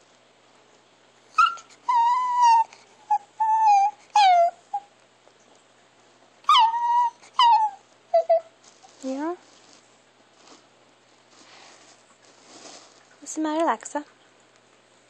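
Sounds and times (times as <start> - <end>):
dog whining: 1.3 - 4.9, 6.4 - 8.6.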